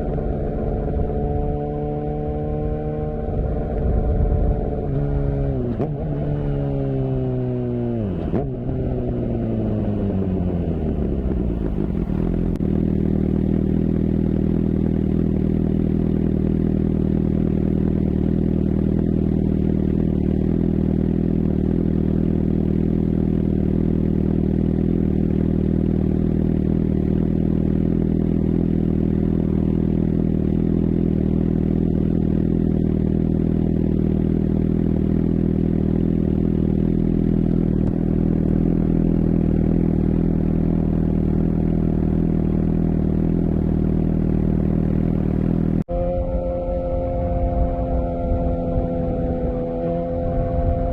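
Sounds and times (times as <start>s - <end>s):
motorcycle engine revs falling to idle: 3.3s - 50.9s.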